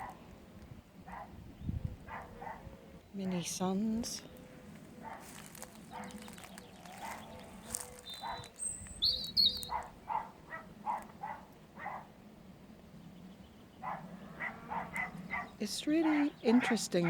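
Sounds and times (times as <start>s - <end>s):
dog barking: 1.1s - 1.4s, 2.1s - 2.7s, 5.0s - 8.6s, 9.6s - 12.1s, 13.8s - 17.0s
small bird chirping: 5.1s - 10.3s.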